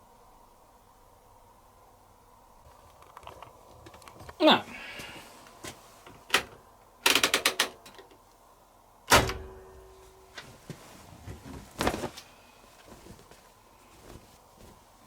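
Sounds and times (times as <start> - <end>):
washing machine door clicks: 9.1 - 9.6.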